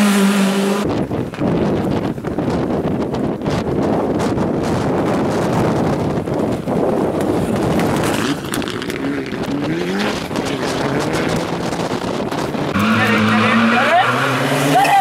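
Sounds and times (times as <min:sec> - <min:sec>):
rally car engine revving: 0:00.0 - 0:01.7, 0:07.3 - 0:15.0.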